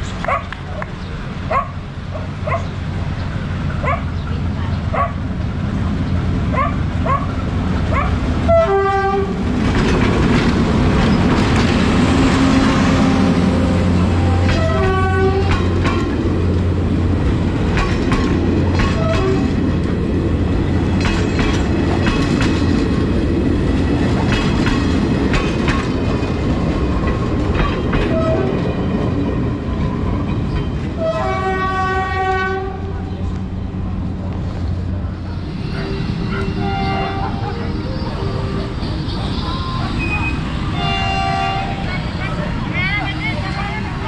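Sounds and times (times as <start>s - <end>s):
train rumbling past: 0.0s - 44.0s
train horn: 8.4s - 9.4s, 12.2s - 15.7s, 18.8s - 19.6s, 28.1s - 28.6s, 31.0s - 33.0s, 36.0s - 37.8s, 39.1s - 42.0s
wheels clicking over rail joints: 8.6s - 12.2s, 17.3s - 20.0s, 20.8s - 23.2s.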